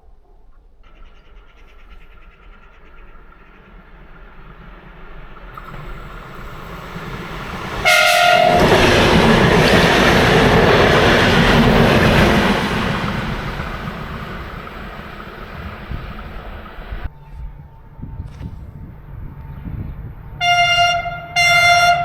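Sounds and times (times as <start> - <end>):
train rolling past: 0.8 - 22.0
train horn blast: 7.4 - 12.5, 20.2 - 22.0.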